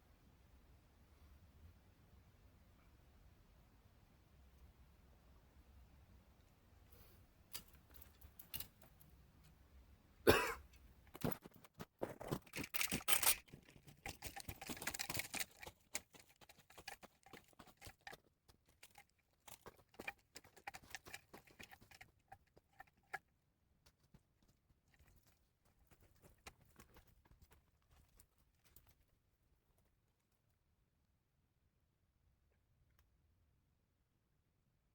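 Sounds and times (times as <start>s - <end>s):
handling clicks and crunches: 7.5s - 9.6s, 10.6s - 23.3s, 23.9s - 29.2s.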